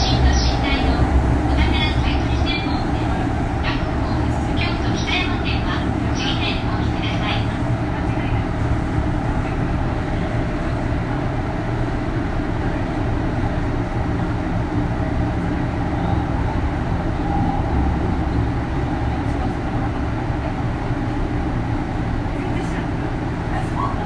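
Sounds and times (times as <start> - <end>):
electric train running noise: 0.0 - 10.8.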